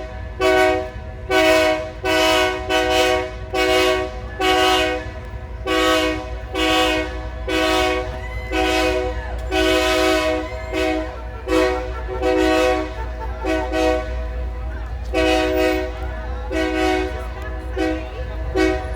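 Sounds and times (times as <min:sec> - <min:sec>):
locomotive air horn blasts: 0:00.0 - 0:18.9.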